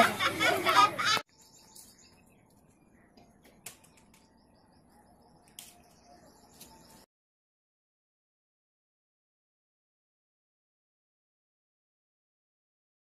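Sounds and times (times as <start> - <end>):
faint birds chirping: 0.6 - 7.1.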